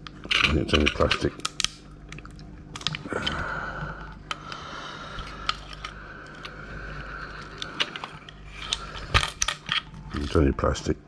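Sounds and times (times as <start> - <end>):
clicks of hard parts handled: 0.0 - 3.4.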